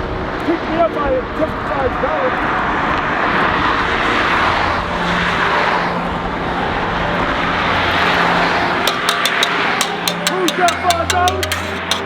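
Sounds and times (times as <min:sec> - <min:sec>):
highway traffic passing: 0:00.1 - 0:12.0
sharp evenly spaced ticks: 0:08.8 - 0:12.0.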